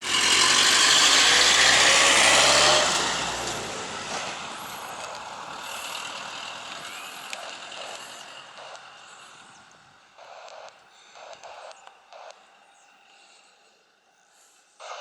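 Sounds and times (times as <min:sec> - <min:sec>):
airliner engine noise: 0:00.0 - 0:10.4.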